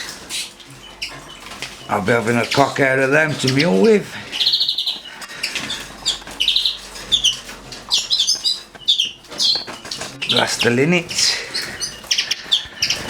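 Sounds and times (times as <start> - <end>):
birds chirping and trilling: 0.0 - 13.0
wing flutters: 0.0 - 13.0.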